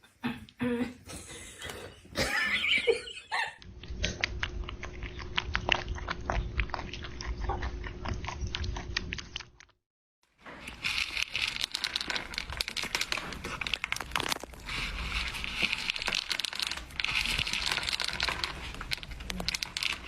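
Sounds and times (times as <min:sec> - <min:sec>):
animal chewing with crunching clicks: 0:03.6 - 0:09.8, 0:10.5 - 0:20.0
animal sounds: 0:03.8 - 0:09.5.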